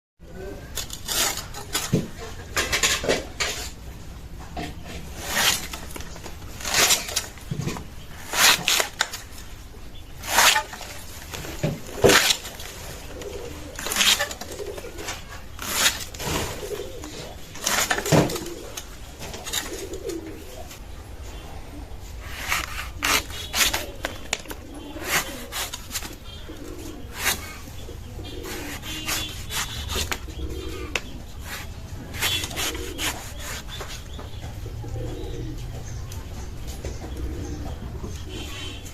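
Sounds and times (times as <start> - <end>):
blade cutting and scraping fruit: 0.7 - 3.8, 4.7 - 9.5, 10.2 - 20.3, 22.1 - 34.4
bird cooing: 10.4 - 20.8, 21.5 - 38.8.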